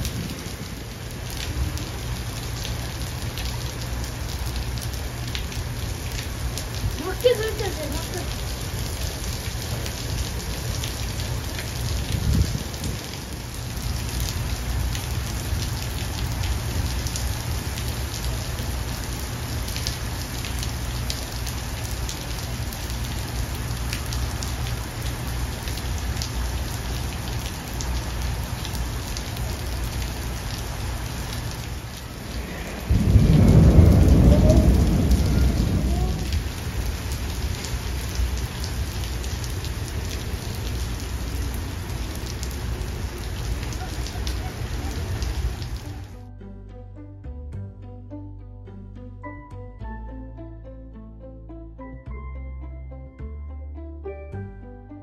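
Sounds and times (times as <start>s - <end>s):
heavy rain on pavement: 0.0s - 46.2s
thunder clap: 32.1s - 37.4s.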